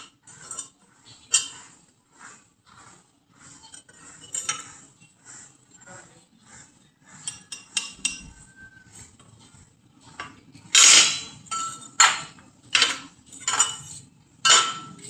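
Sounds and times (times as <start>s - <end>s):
metallic clanks: 10.7s - 15.0s.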